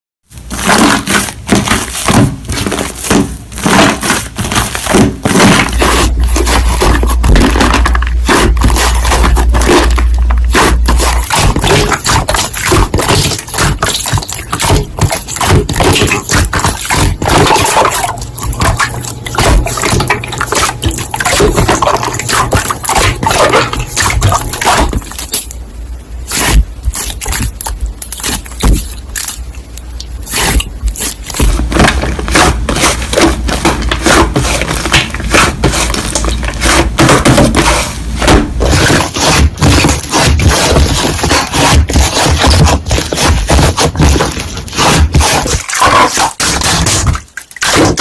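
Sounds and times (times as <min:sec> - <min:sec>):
slime crackling and popping: 0:00.3 - 0:25.6, 0:26.2 - 0:37.4.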